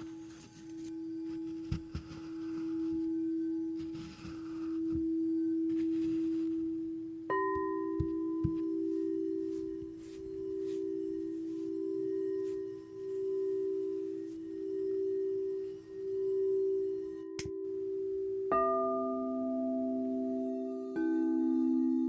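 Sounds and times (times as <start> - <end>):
singing bowls ringing: 0.0 - 22.0.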